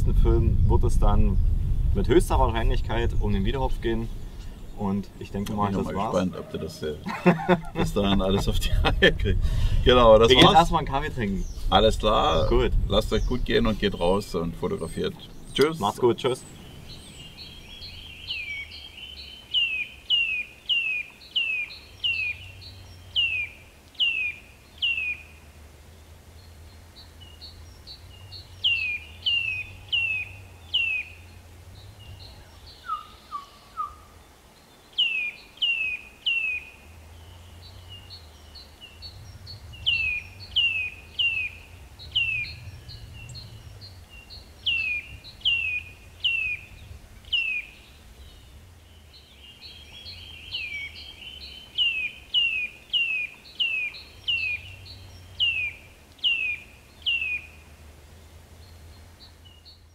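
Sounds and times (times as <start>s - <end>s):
faint low rumble: 0.0s - 19.4s, 36.9s - 51.6s
songbird whistling: 16.4s - 25.3s, 27.2s - 31.4s, 32.0s - 34.3s, 34.9s - 57.6s.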